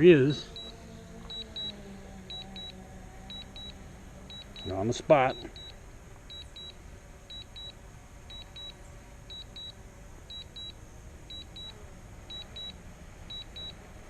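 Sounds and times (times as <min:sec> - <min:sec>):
low steady background noise: 0:00.0 - 0:14.0
high double beeps: 0:02.3 - 0:09.7, 0:10.3 - 0:12.7, 0:13.3 - 0:13.8.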